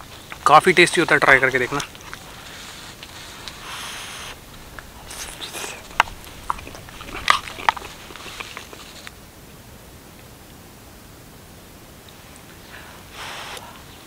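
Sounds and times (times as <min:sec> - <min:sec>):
person chewing: 0:01.8 - 0:09.1.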